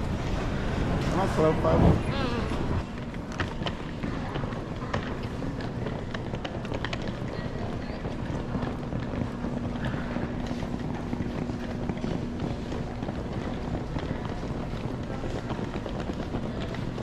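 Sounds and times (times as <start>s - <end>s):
low steady hum: 0.0s - 3.4s
steady rumble: 0.0s - 4.6s.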